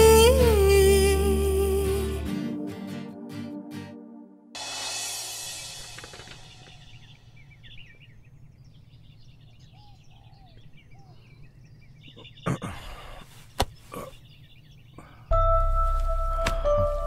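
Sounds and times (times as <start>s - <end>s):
small birds chirping: 5.6s - 15.4s.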